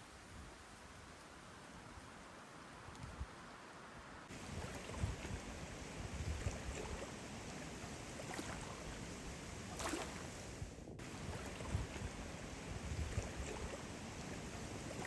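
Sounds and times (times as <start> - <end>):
water: 0.0 - 15.0
wind: 0.0 - 15.0
wind buffeting microphone: 4.1 - 15.0.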